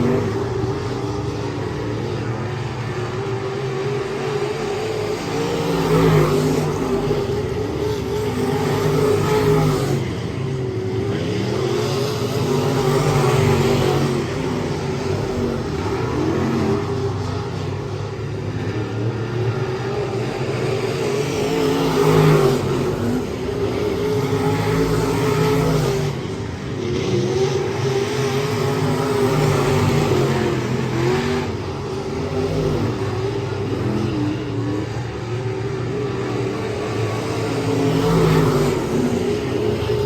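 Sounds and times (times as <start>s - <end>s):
race car engine revving: 19.8s - 40.0s.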